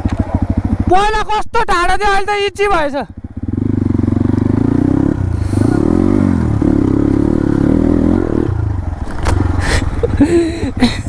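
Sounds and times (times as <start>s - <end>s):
dirt bike engine revving: 3.2s - 10.7s.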